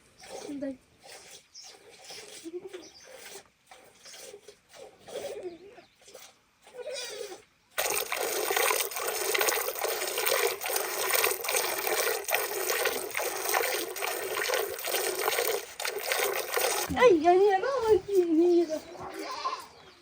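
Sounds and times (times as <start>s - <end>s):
water rushing and splashing: 7.8s - 17.1s.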